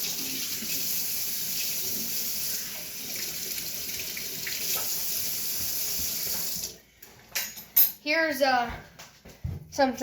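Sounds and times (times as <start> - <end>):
tap running into sink: 4.4 - 6.7.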